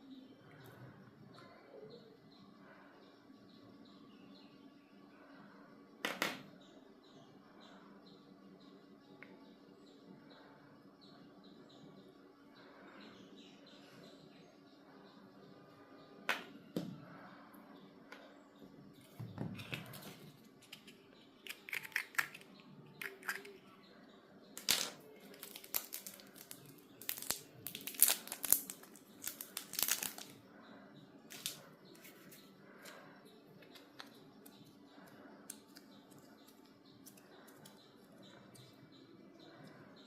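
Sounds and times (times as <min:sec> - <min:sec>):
plastic packaging crinkling: 0:25.2 - 0:30.4.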